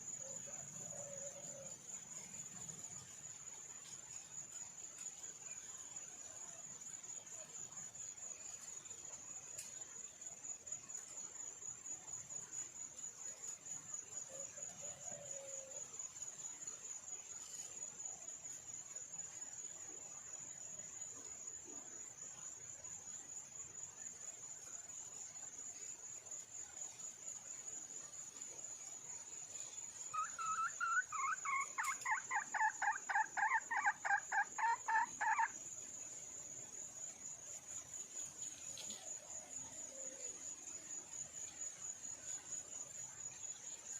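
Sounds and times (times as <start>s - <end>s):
cricket trill: 0.0s - 43.9s
junglefowl hen calling: 30.2s - 35.5s.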